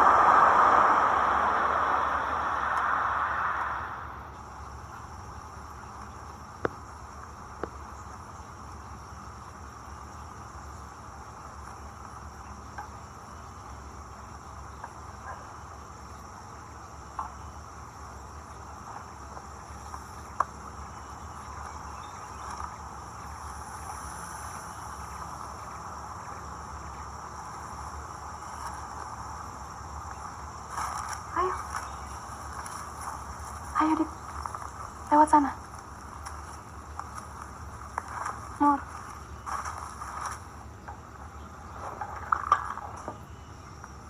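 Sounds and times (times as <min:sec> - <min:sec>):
crickets and insects chirring: 0:00.0 - 0:44.0.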